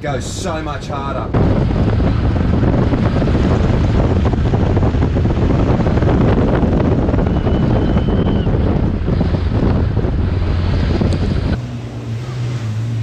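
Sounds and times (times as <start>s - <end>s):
diesel engine rumbling under load: 0.0s - 13.0s
wind buffeting microphone: 0.0s - 13.0s.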